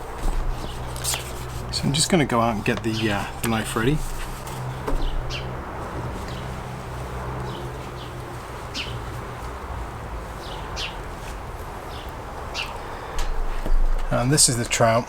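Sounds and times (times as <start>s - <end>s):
songbird chirping: 0.0s - 11.1s
steady low hum: 0.0s - 14.7s.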